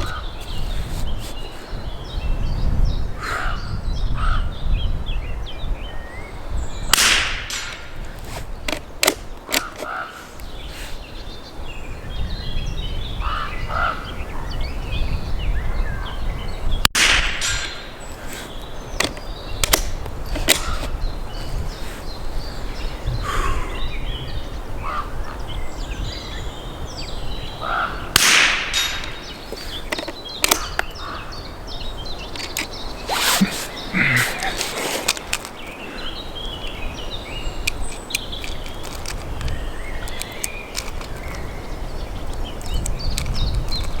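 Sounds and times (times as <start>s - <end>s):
wind on microphone: 0.0s - 44.0s
rifle gunshots: 7.0s - 7.7s, 17.0s - 17.8s, 28.1s - 29.3s
rifle bolt clicks: 8.7s - 10.0s, 19.0s - 20.9s, 28.2s - 30.9s, 32.3s - 32.8s.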